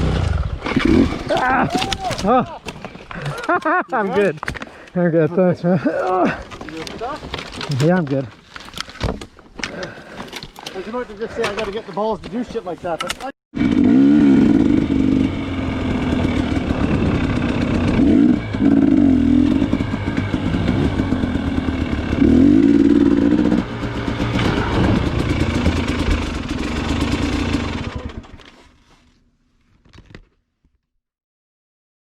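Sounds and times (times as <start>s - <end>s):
dirt bike engine revving: 0.0s - 1.4s, 13.5s - 28.4s.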